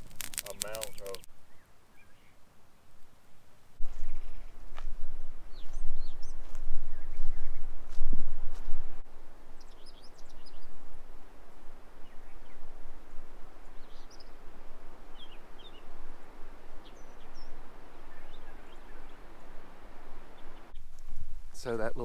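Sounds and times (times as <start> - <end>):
small birds chirping: 0.0 - 2.4, 9.6 - 10.8, 13.5 - 21.7.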